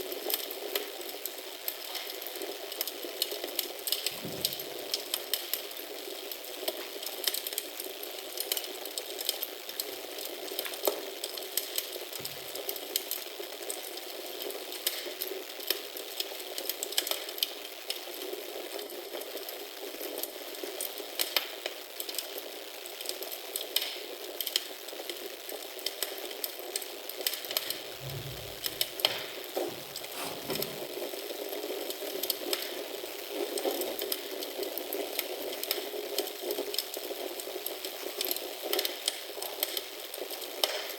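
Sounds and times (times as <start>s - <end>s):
wood fire crackling in fireplace: 0.0s - 40.9s
soft low thuds: 27.9s - 30.9s.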